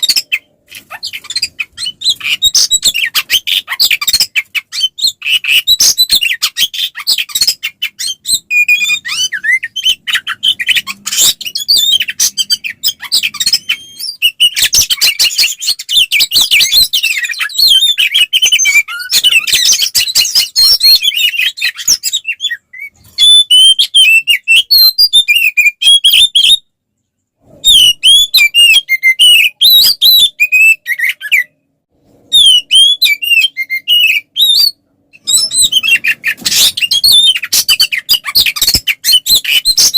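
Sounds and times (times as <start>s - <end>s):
bird singing whistles and chatter: 27.6s - 31.6s, 32.3s - 39.9s.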